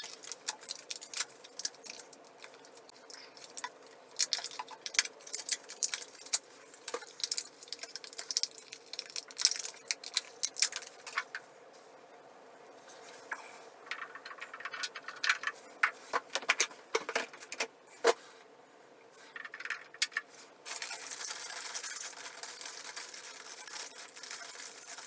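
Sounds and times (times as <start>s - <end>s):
hardware parts clicking and clinking: 13.2s - 18.2s, 19.2s - 25.0s.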